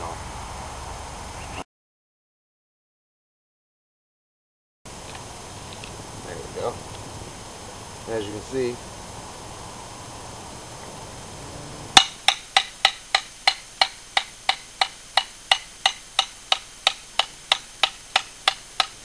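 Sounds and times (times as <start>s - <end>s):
hammer striking an anvil: 12.0s - 19.0s.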